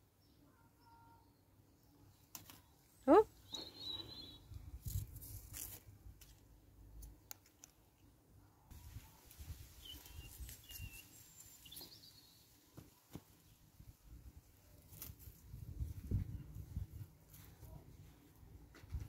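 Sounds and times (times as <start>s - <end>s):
faint bird chirps: 0.0s - 4.6s, 9.7s - 12.6s.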